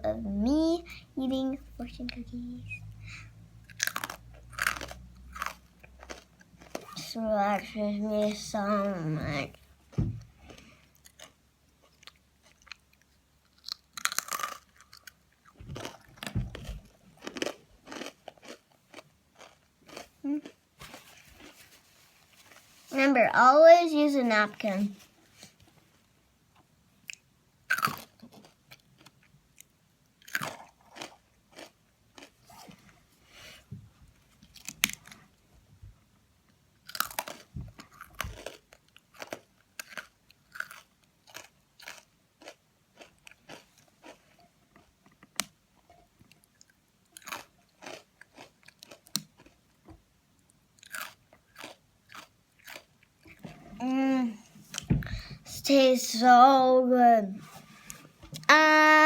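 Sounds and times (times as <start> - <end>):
crunching crisp cookies: 3.1 - 21.8, 27.0 - 33.0, 34.3 - 35.4, 36.5 - 45.6, 46.2 - 56.8.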